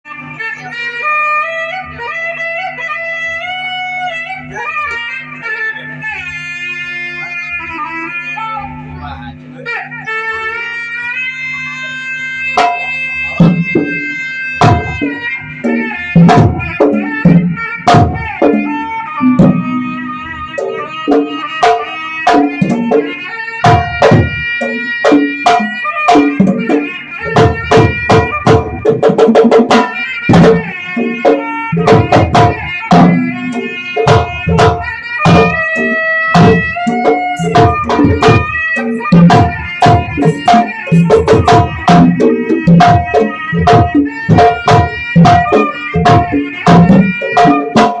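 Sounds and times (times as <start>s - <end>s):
reedy wind instrument melody: 0.1s - 48.0s
hand drum strokes: 11.1s - 48.0s.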